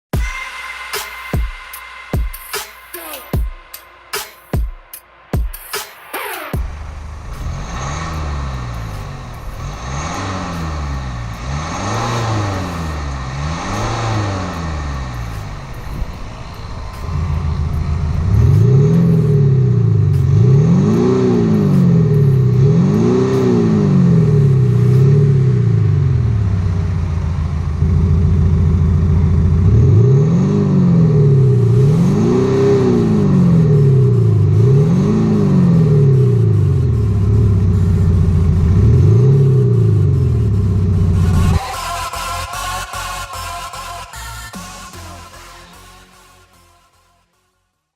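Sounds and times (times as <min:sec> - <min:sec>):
car engine revving: 0:05.8 - 0:47.4
car engine idling: 0:06.4 - 0:46.1.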